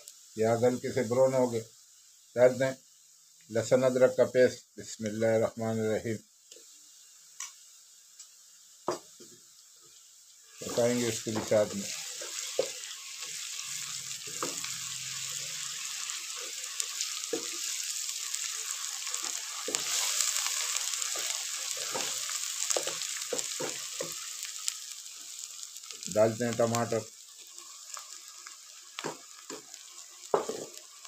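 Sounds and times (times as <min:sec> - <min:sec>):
onions sizzling in a pot: 0:00.0 - 0:31.0
wooden spatula scraping a pan: 0:10.6 - 0:13.5, 0:19.1 - 0:24.2, 0:30.4 - 0:30.8.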